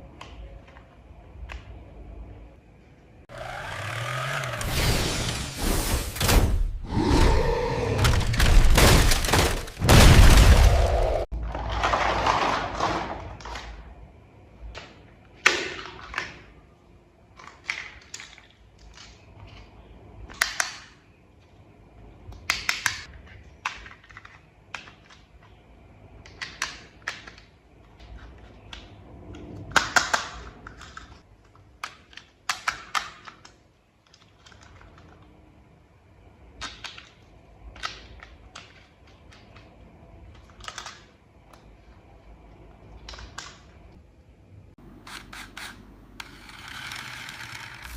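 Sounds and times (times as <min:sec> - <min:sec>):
plastic toy parts clicking: 0:26.2 - 0:35.3, 0:36.6 - 0:41.6, 0:45.0 - 0:47.9.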